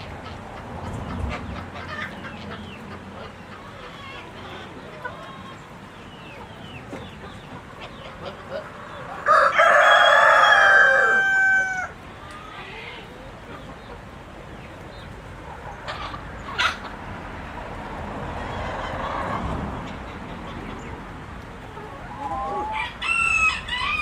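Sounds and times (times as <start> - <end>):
chickens calling: 0.0 - 24.0
rooster crowing: 9.2 - 12.0, 22.4 - 24.0.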